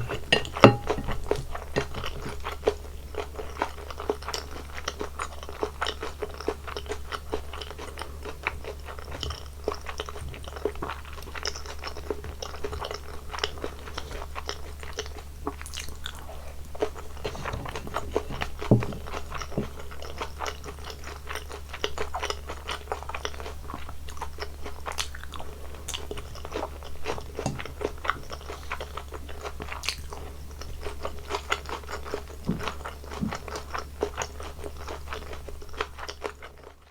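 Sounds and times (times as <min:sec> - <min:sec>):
low knock: 0:00.0 - 0:02.0
person chewing crunchy food: 0:00.0 - 0:36.9.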